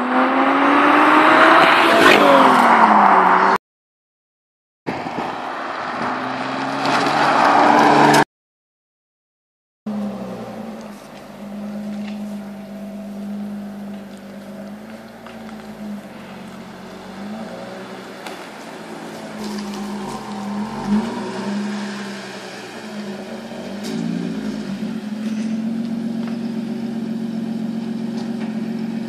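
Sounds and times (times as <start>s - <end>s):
car engine running at low speed: 9.9s - 29.0s.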